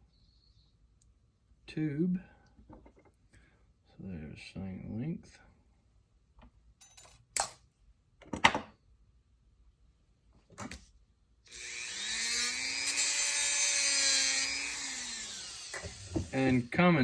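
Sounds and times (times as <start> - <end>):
rotary power tool whining: 11.5 - 16.7.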